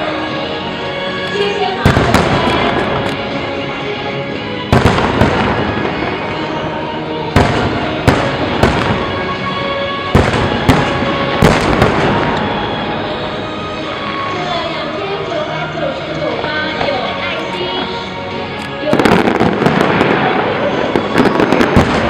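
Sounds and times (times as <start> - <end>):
music playing: 0.0 - 22.0
fireworks bursting with bangs: 1.8 - 3.8, 4.4 - 14.2, 18.8 - 22.0.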